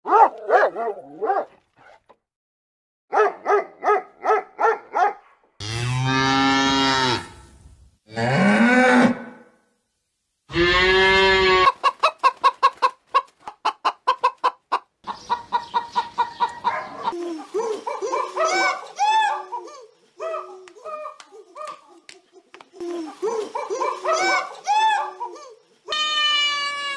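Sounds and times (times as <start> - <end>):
dog yapping: 0.1 - 2.0, 3.2 - 5.3
cow mooing: 5.6 - 7.4, 8.1 - 9.4.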